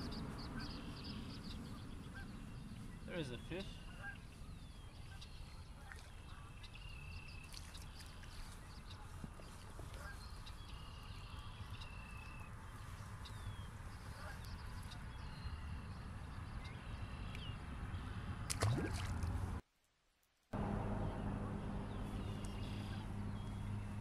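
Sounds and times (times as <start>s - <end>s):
steady low rumble: 20.6s - 24.0s.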